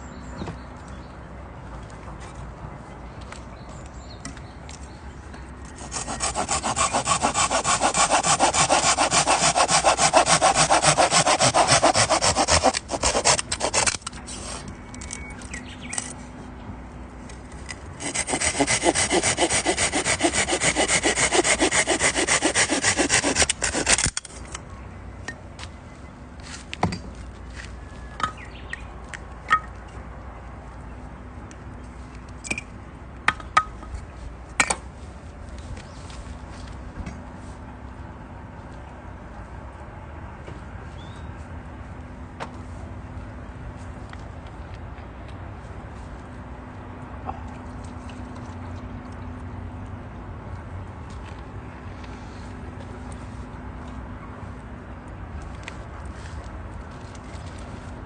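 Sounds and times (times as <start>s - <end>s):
hand saw cutting wood: 5.8s - 14.6s, 18.0s - 24.3s.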